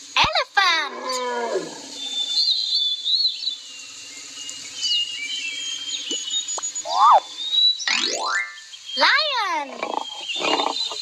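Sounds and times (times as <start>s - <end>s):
birds chirping: 1.1s - 11.0s
rising and falling bird call: 4.3s - 11.0s.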